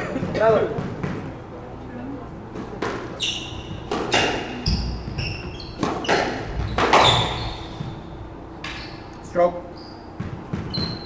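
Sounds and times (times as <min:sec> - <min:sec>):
shoes squeaking on court floor: 0:02.6 - 0:11.0
footsteps thudding: 0:03.6 - 0:08.2, 0:10.1 - 0:11.0
squash ball cracking off racket: 0:05.8 - 0:07.3.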